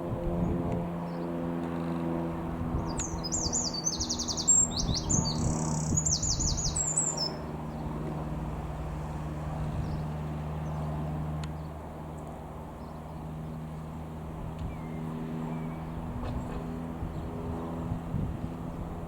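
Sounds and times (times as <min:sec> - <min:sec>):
low engine drone: 0:00.0 - 0:19.0
songbird singing trilled phrases: 0:02.8 - 0:07.9.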